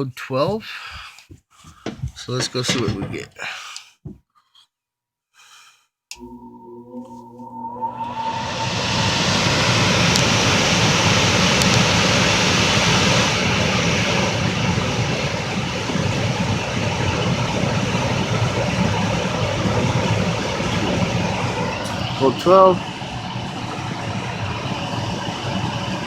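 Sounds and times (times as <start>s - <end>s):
furnace fan motor: 1.8s - 3.5s, 6.1s - 26.0s
rush of moving air: 8.2s - 17.0s.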